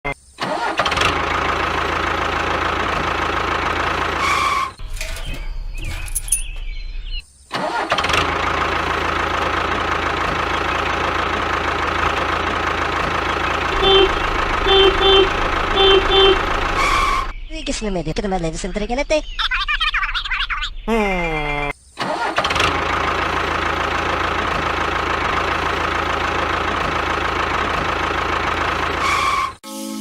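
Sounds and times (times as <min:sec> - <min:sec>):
small engine running: 0:07.8 - 0:17.3, 0:22.1 - 0:29.6.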